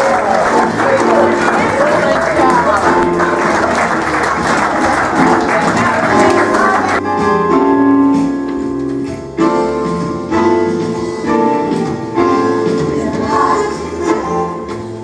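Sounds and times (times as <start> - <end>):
keyboard chords: 0.0 - 15.0
choir singing gospel song: 12.7 - 14.7.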